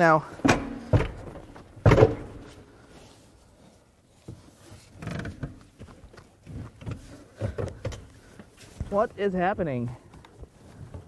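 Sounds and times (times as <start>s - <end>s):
loud clunk: 0.4s - 2.6s.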